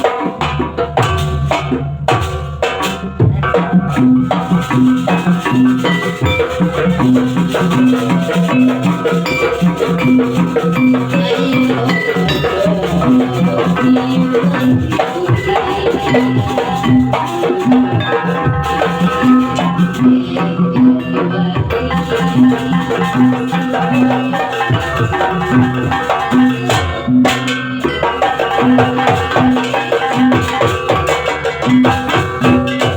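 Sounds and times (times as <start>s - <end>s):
rattling percussion: 0.0s - 32.9s
rhythmic drums: 0.0s - 32.9s
repeating pitched pattern: 3.5s - 27.2s.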